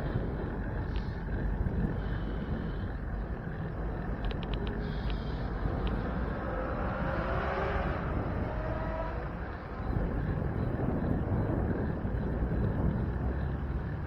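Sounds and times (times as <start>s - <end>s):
bicycle road noise: 0.0s - 14.0s
wind rushing over microphone: 0.0s - 14.0s
faint ticks: 0.1s - 6.5s.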